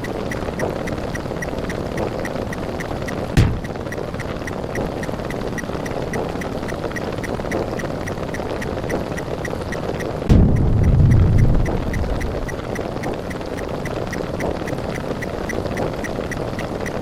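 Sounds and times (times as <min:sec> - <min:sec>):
rumbling buzz with ticks: 0:00.0 - 0:17.0
sharp loud hit: 0:03.4 - 0:03.7, 0:10.3 - 0:12.6
deep loud burst: 0:10.3 - 0:12.6.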